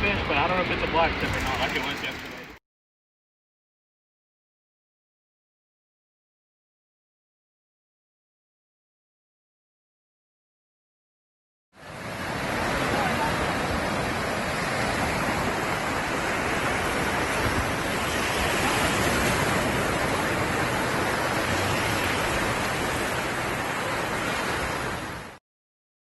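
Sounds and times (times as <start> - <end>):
ocean surf breaking: 0.0 - 2.6, 11.8 - 25.4.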